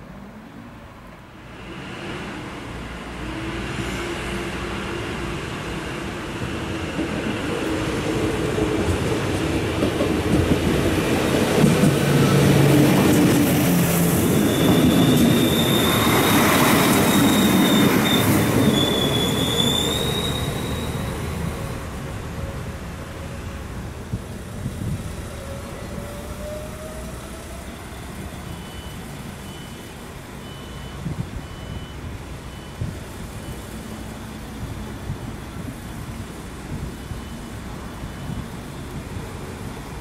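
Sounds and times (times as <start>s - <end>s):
diesel railcar passing: 0.0s - 40.0s
wheels squealing on rails: 11.6s - 23.7s, 24.8s - 34.3s, 35.7s - 39.8s.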